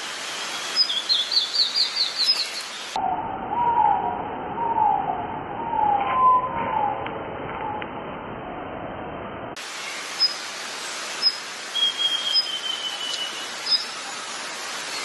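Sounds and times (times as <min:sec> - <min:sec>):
bird rising chirps: 0:00.3 - 0:07.0, 0:10.2 - 0:10.4, 0:11.2 - 0:15.0.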